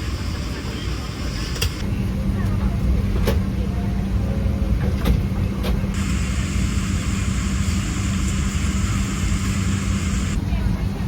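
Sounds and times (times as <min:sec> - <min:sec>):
airliner cabin hum: 0:00.0 - 0:03.4, 0:04.8 - 0:10.4.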